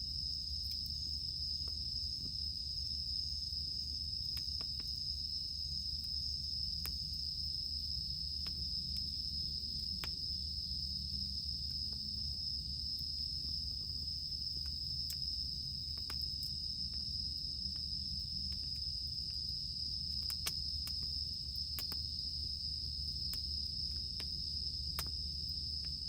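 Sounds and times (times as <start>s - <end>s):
campfire crackling: 12.9s - 26.0s.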